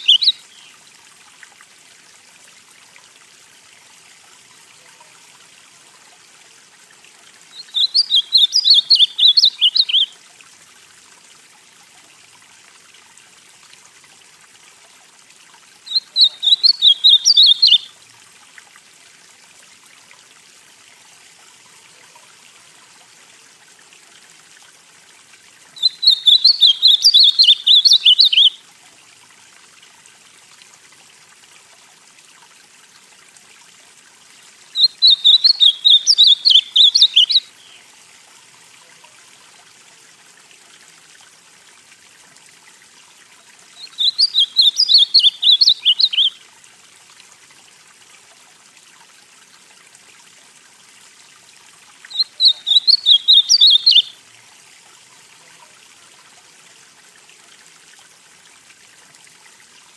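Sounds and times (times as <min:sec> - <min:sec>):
bird warbling song: 0:00.0 - 0:00.7, 0:07.5 - 0:10.1, 0:15.9 - 0:17.9, 0:25.8 - 0:28.6, 0:34.8 - 0:37.8, 0:43.8 - 0:46.4, 0:52.1 - 0:54.2
faint steady hiss: 0:00.0 - 0:59.9.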